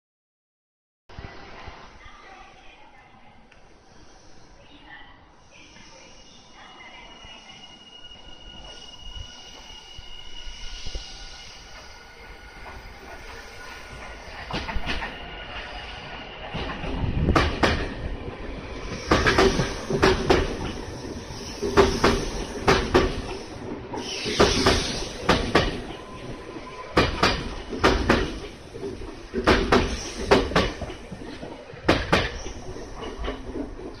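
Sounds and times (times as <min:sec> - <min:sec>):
train rumble: 0:05.2 - 0:34.0
train wheels clacking over joints: 0:18.8 - 0:26.0, 0:26.9 - 0:34.0.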